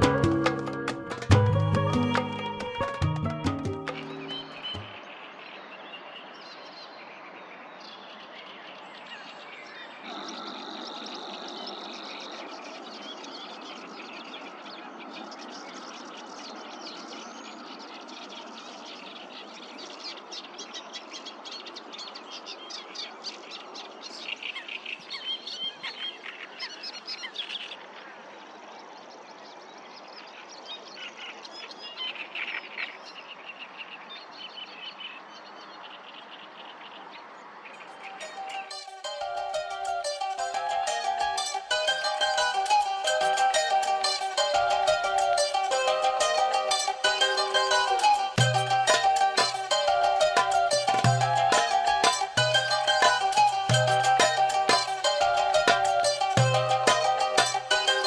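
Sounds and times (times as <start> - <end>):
birds chirping and trilling: 37.8 - 58.0.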